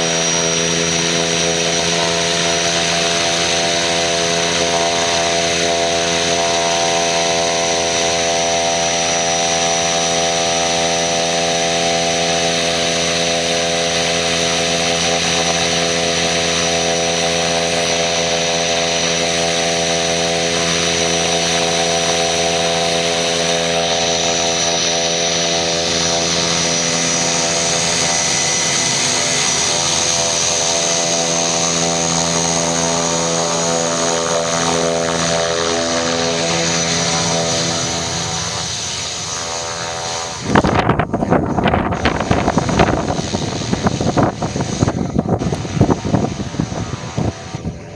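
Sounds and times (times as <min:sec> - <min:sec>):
turbine aircraft buzzing drone: 0:00.0 - 0:47.9
high hiss: 0:36.4 - 0:47.9.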